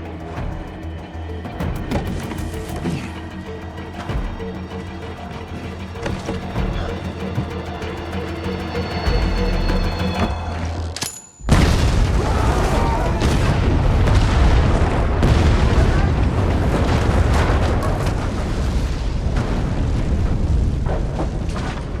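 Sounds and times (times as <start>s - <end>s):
dense blast rumble: 11.5s - 22.0s
loud explosion: 11.5s - 22.0s.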